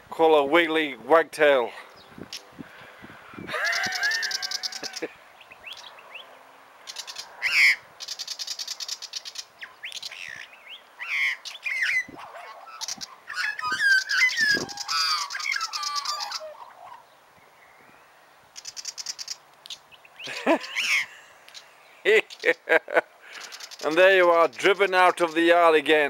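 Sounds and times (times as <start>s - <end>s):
magpie warbling calls: 3.6s - 5.1s, 6.9s - 17.1s, 18.6s - 19.9s, 20.6s - 21.1s
bird rattling chatter: 8.0s - 10.1s, 12.8s - 15.8s, 18.6s - 19.4s, 22.2s - 22.6s, 23.3s - 25.4s.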